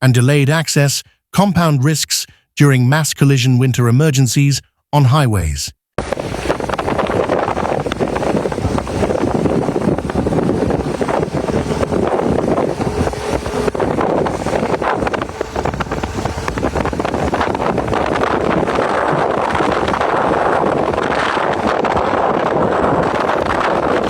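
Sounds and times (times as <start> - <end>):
wind buffeting microphone: 6.0 - 24.0.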